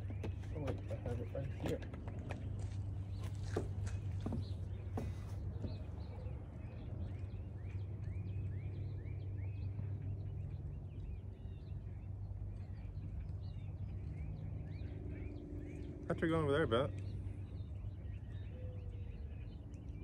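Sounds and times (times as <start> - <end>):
birds calling arched notes: 0.0 - 20.0.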